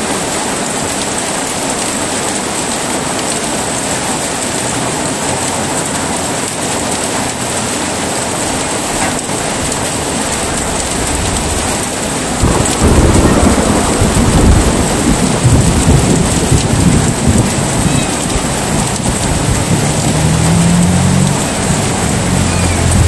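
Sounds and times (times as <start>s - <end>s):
heavy rain: 0.0s - 23.0s
thunder rumbling: 8.1s - 23.0s
low steady drone: 9.4s - 14.0s.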